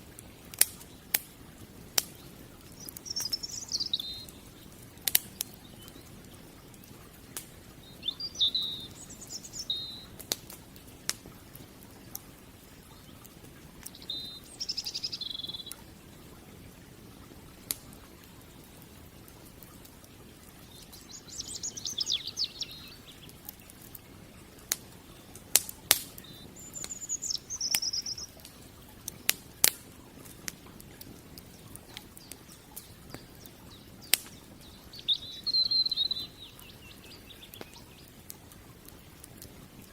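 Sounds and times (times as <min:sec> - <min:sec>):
campfire crackling: 0:00.0 - 0:39.9
fire popping: 0:00.0 - 0:39.9
songbirds chirping: 0:00.0 - 0:39.9.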